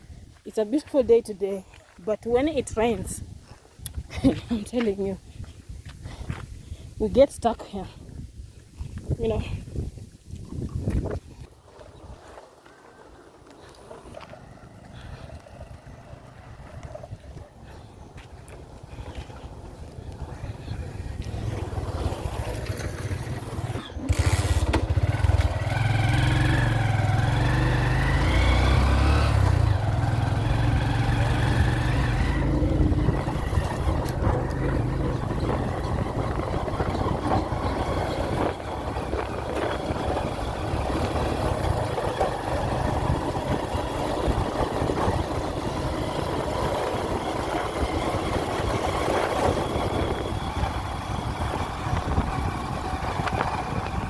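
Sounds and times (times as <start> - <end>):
driving over rough dirt road: 0.0 - 54.0
vehicle engine revving: 20.9 - 54.0.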